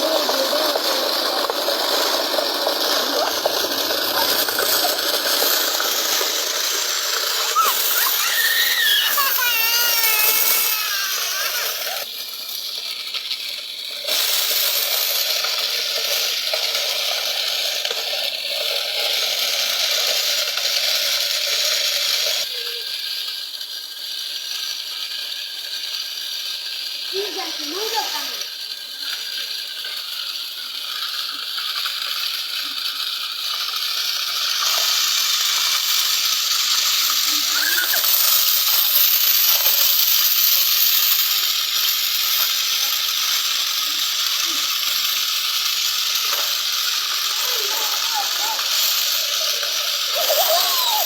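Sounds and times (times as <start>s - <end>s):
toy thresher motor rattling: 0.0s - 51.0s.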